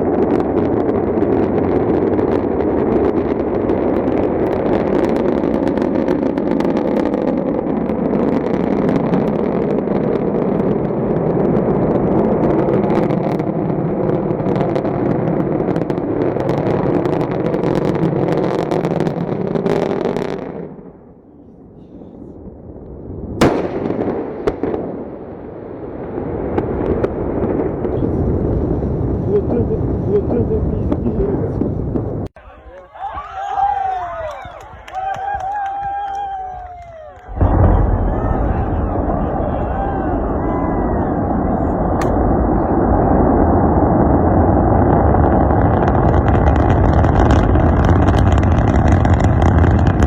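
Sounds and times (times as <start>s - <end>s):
rocket rumbling: 0.0s - 32.4s, 33.3s - 50.0s
loud sharp bang: 23.4s - 24.9s, 37.2s - 42.7s
crackling: 26.2s - 32.9s
cracks: 41.9s - 42.4s.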